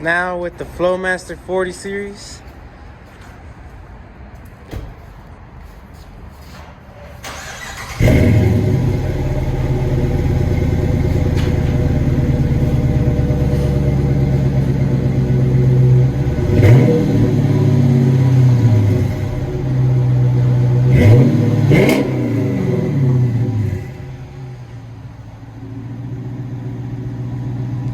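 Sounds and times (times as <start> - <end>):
car engine starting: 7.2 - 27.9
car engine revving: 7.3 - 24.8
car engine idling: 7.3 - 27.9.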